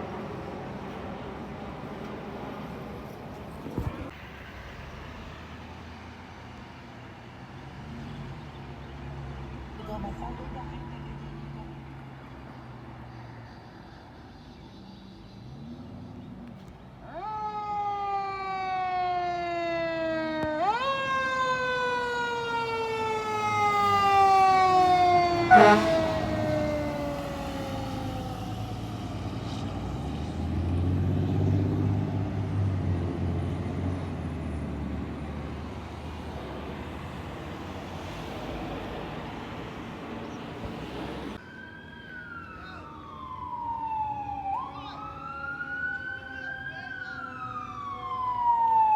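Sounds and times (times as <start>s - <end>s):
fire engine siren wailing: 17.0s - 39.2s, 40.9s - 48.9s
another siren sweeping: 17.2s - 29.0s, 41.4s - 48.9s
truck engine rumbling: 21.0s - 41.4s
loud horn blast: 25.3s - 26.7s.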